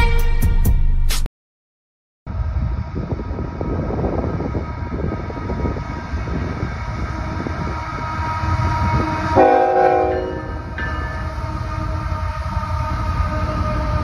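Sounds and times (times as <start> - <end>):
locomotive rumbling past: 2.3 - 14.0
train air horn blast: 8.4 - 10.7.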